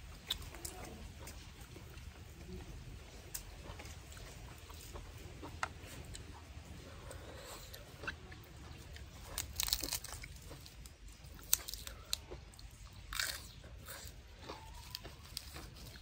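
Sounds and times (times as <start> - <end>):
person chewing crunchy food: 3.1 - 16.0
lettuce leaves tearing: 9.2 - 12.2.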